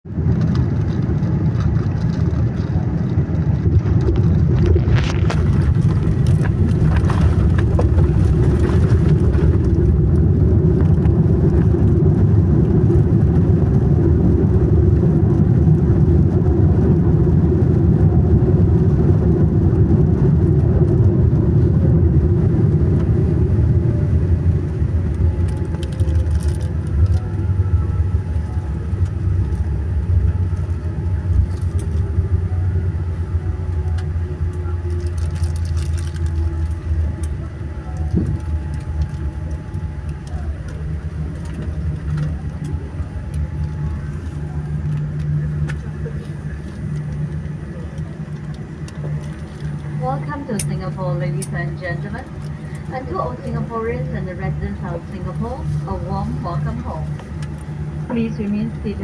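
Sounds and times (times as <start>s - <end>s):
aircraft rumbling on runway: 0.0s - 59.0s
faint falling whine: 20.8s - 59.0s.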